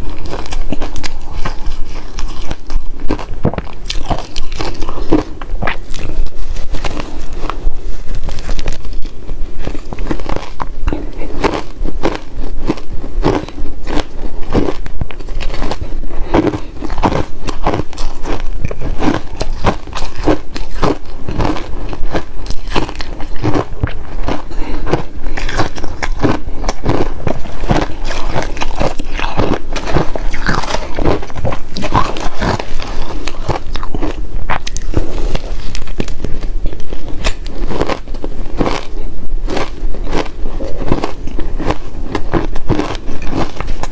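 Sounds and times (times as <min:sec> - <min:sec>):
ice cubes being chewed: 0:00.0 - 0:43.9.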